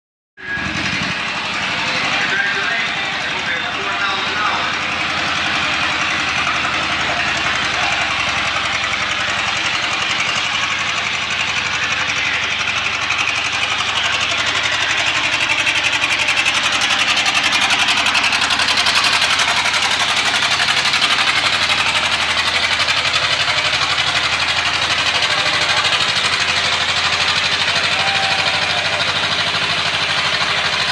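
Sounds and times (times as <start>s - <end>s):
tractor engine labouring: 0.4s - 30.9s.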